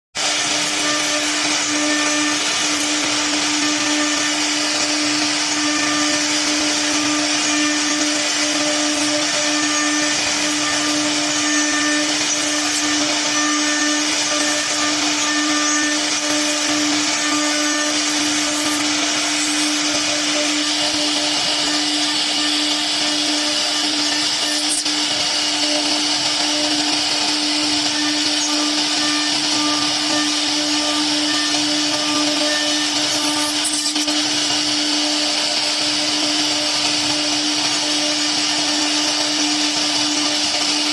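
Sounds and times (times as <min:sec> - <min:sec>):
cnc router spindle whine: 0:00.2 - 0:40.9.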